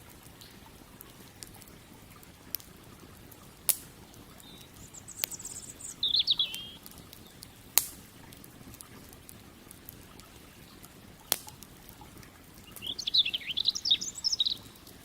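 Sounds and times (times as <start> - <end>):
campfire crackling: 0.0 - 15.0
campfire pops: 0.0 - 15.0
small bird chirping: 4.4 - 7.6, 12.6 - 14.8.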